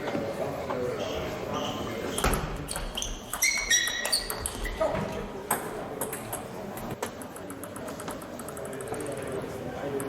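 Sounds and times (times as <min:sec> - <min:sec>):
short high squeaks: 0:01.6 - 0:04.9
table tennis ball clicking: 0:05.5 - 0:10.0.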